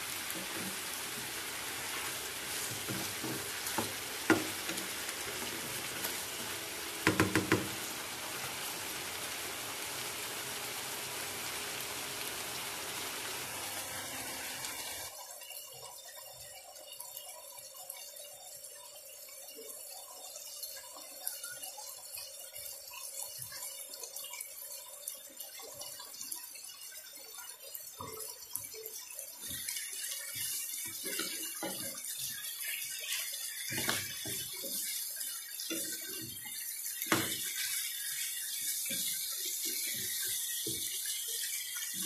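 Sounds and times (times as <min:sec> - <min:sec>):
wooden spatula stirring: 0:00.0 - 0:10.4
curry sizzling in a pan: 0:00.0 - 0:42.0.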